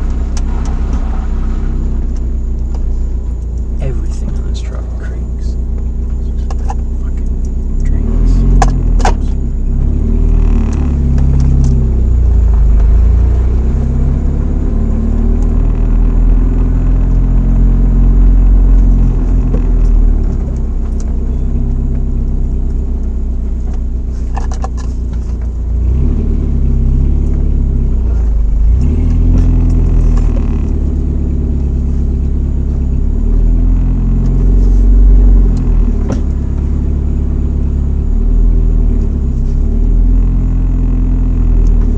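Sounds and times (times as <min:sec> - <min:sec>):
truck engine exhaust drone: 0:00.0 - 0:41.9.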